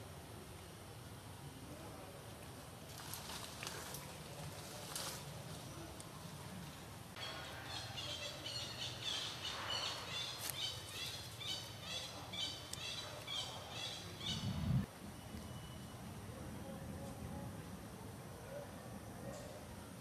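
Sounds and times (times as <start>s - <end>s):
bird chirping: 7.2s - 16.0s
brief low rumble: 14.3s - 14.9s.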